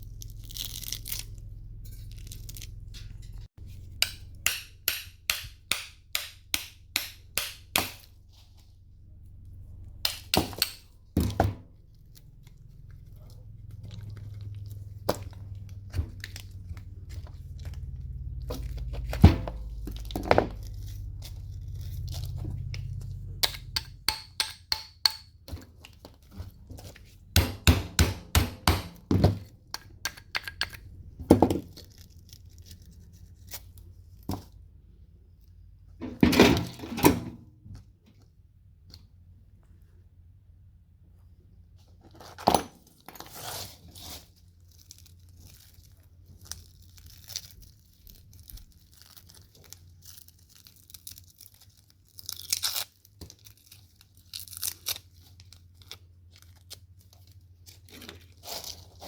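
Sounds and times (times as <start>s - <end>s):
low rumble: 10.8s - 24.1s
metal parts and tools knocking: 23.4s - 25.4s.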